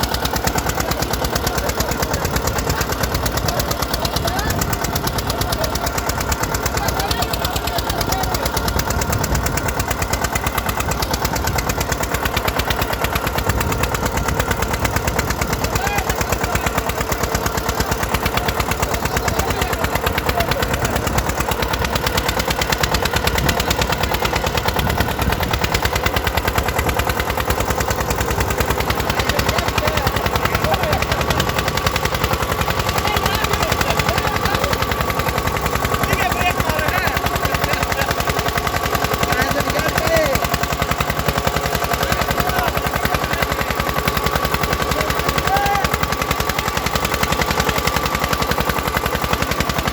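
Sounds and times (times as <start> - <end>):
tractor diesel engine under load: 0.0 - 49.9.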